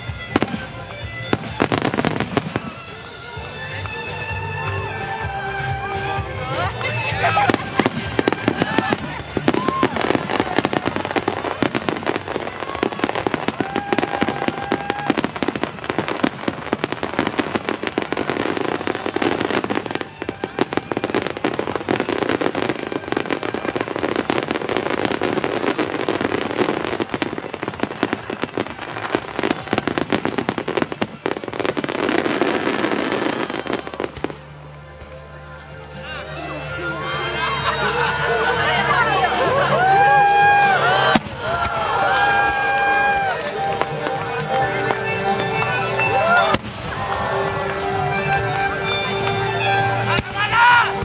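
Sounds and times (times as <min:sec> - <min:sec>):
fireworks bursting and crackling: 0:00.0 - 0:35.9, 0:38.7 - 0:51.0
firework whistles: 0:07.5 - 0:34.6.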